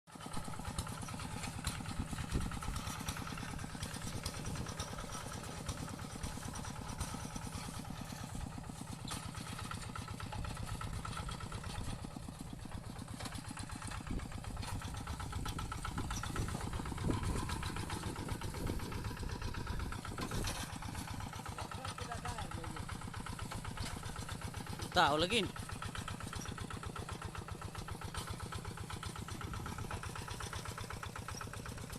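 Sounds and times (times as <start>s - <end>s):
tractor engine running: 0.1s - 31.9s.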